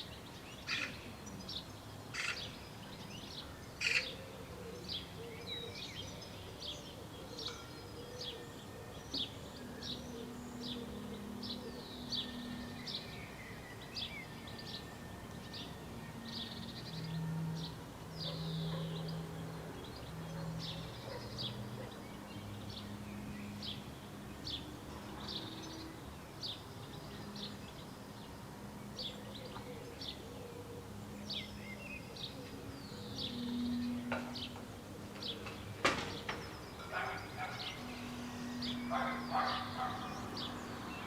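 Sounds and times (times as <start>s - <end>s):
bird chirping: 0.0s - 41.0s.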